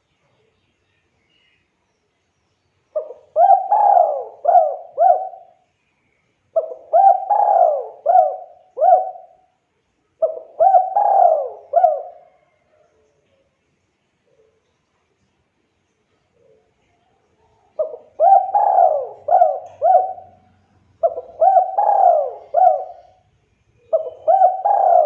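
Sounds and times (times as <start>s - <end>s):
dove cooing: 3.0s - 5.6s, 6.6s - 9.5s, 10.2s - 12.7s, 17.7s - 25.0s.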